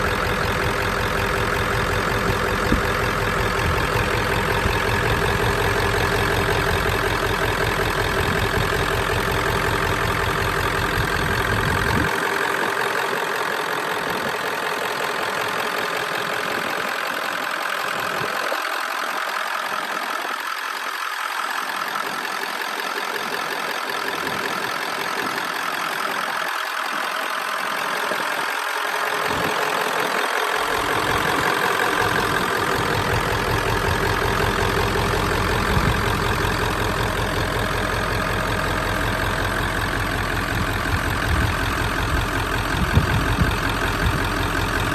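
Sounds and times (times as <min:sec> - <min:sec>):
pickup truck engine idling: 0:00.0 - 0:44.9.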